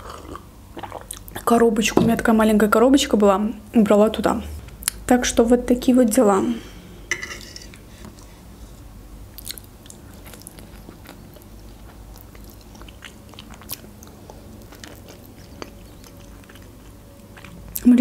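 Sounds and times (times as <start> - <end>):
person chewing food: 9.3 - 17.9.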